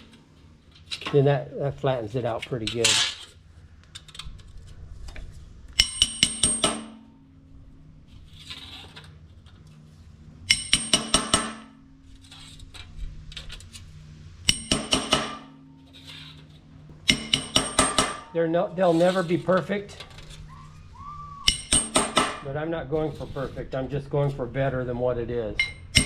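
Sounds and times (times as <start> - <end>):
hammer tapping metal: 5.7 - 7.2, 10.5 - 12.3, 14.4 - 15.8, 17.0 - 18.4, 21.4 - 22.4, 25.6 - 26.0.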